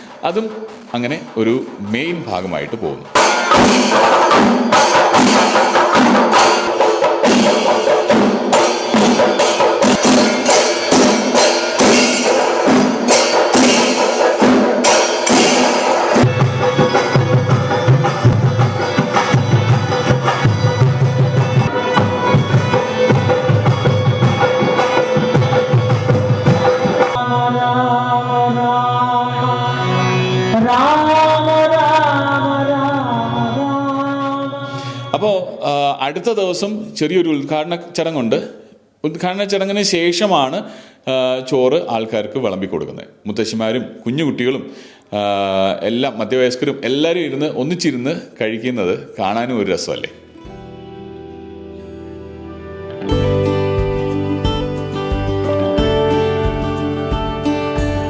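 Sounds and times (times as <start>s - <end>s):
drums beating fast: 0.0s - 27.2s, 53.1s - 58.0s
melody with bending notes: 50.2s - 58.0s.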